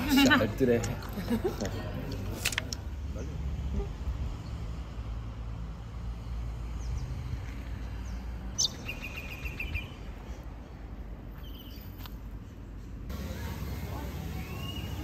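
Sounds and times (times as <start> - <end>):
bird chirping: 8.0 - 10.8.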